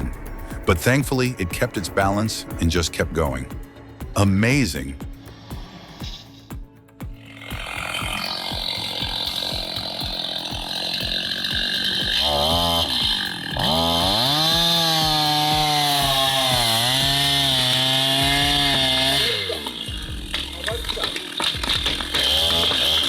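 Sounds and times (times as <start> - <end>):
chainsaw engine revving: 7.2 - 23.0.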